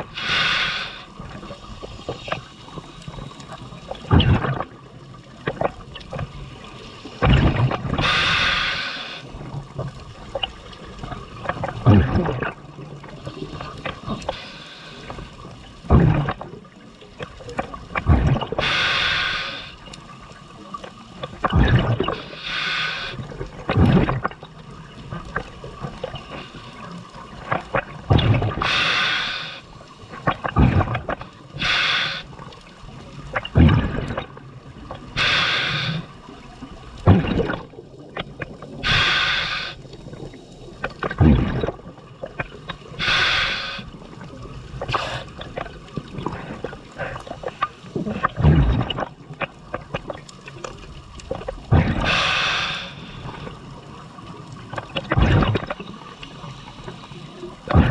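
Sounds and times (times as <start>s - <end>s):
hissing regulator inhalation: 0.0s - 1.2s, 8.0s - 9.4s, 14.0s - 15.4s, 18.6s - 19.9s, 22.0s - 23.4s, 28.5s - 30.2s, 31.5s - 32.4s, 35.0s - 36.2s, 38.8s - 39.9s, 42.9s - 44.0s, 51.9s - 53.6s
bubbling exhalation underwater: 15.8s - 16.6s, 33.3s - 34.4s, 41.0s - 43.6s, 48.0s - 50.3s, 51.4s - 53.6s, 54.6s - 55.8s, 57.6s - 57.9s.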